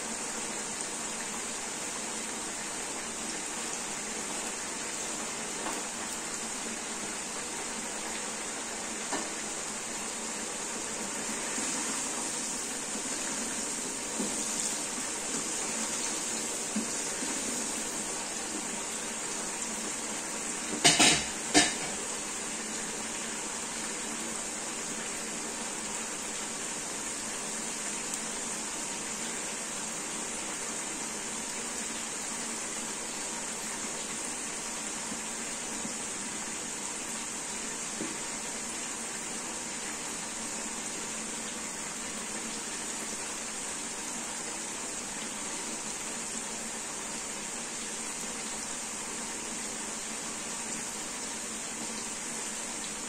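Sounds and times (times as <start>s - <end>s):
beans sizzling in hot oil: 0.0s - 42.0s.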